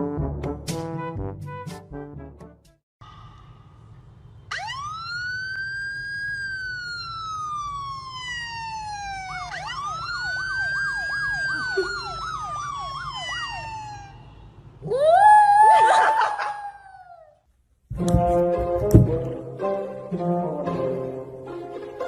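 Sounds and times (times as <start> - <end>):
siren wailing: 4.5 - 17.2
siren yelp: 4.5 - 17.3.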